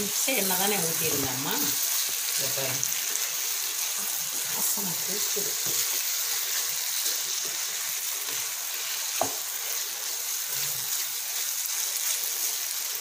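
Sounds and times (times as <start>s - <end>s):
food sizzling in a pan: 0.0s - 13.0s
wooden spatula scraping a pan: 0.7s - 13.0s
spatula tapping on pan: 9.2s - 9.4s.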